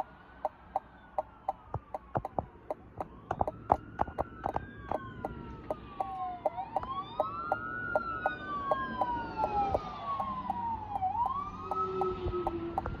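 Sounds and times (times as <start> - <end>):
electronic sirens wailing: 0.0 - 13.0
steady ticking: 0.0 - 13.0.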